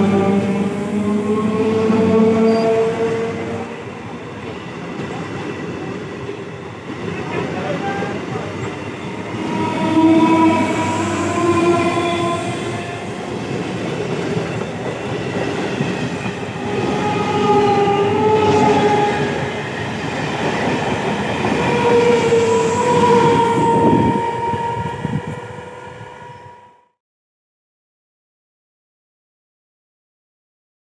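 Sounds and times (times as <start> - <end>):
long pitched tones: 9.1 - 13.6, 16.4 - 19.8, 21.1 - 26.8
train wheels clattering on rail: 13.3 - 17.1.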